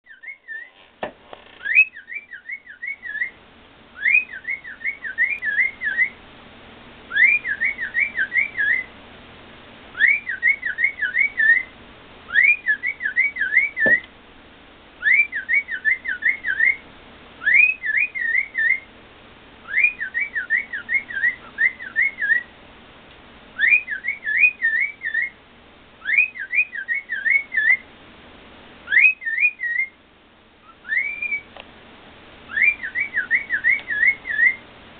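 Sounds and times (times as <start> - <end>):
cockatiel whistling: 0.1 - 0.7, 1.6 - 3.4, 4.0 - 6.2, 7.1 - 8.9, 9.9 - 11.7, 12.3 - 14.1, 15.0 - 16.8, 17.4 - 18.9, 19.6 - 22.5, 23.6 - 25.4, 26.0 - 27.8, 28.8 - 30.0, 30.6 - 31.5, 32.5 - 34.6.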